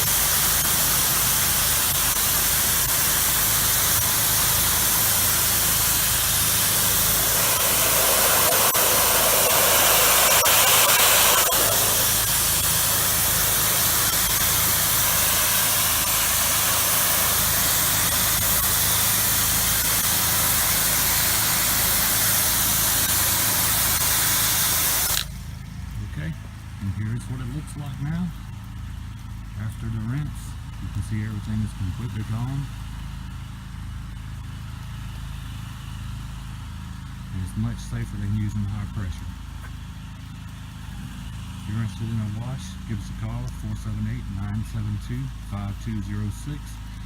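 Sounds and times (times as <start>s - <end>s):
pressure washer spray hissing: 0.0s - 25.4s
pressure washer engine hum: 0.0s - 47.0s.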